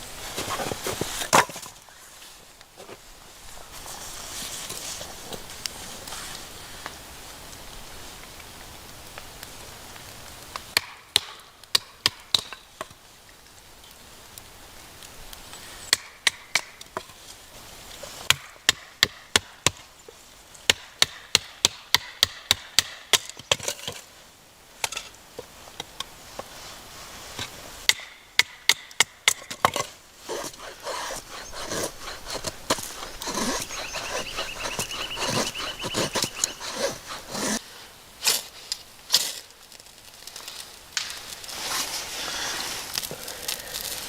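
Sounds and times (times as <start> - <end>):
wood being chopped: 1.2 - 1.7, 10.8 - 12.6, 20.7 - 24.0, 27.9 - 37.5.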